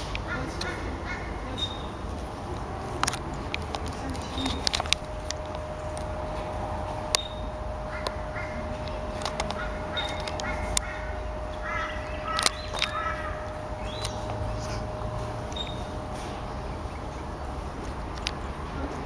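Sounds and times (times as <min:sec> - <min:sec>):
train clicks: 0:00.0 - 0:19.0
train rumble inside carriage: 0:00.0 - 0:19.0
short repeated calls: 0:04.0 - 0:16.4.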